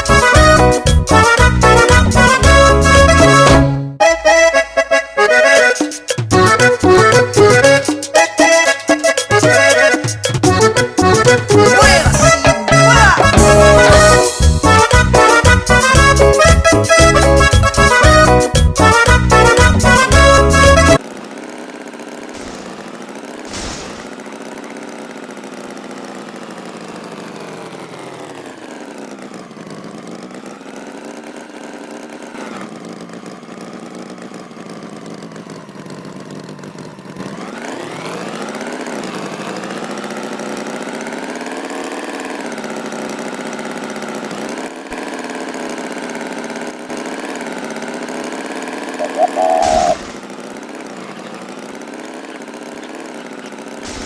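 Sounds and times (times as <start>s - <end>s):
tractor engine revving: 0.0s - 54.0s
short loud tone with knock: 49.0s - 50.2s.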